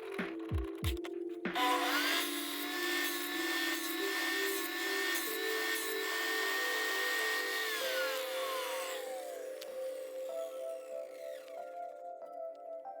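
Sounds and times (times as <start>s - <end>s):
background music: 0.0s - 13.0s
electric drill whining: 1.6s - 12.3s.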